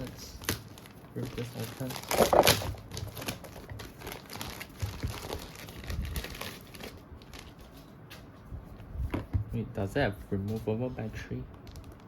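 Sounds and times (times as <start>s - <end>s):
packaging crinkling and rustling: 0.0s - 8.2s, 11.6s - 12.0s.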